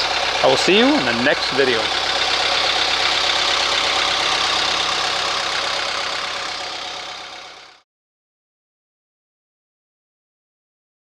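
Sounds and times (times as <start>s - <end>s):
engine idling: 0.0s - 7.8s.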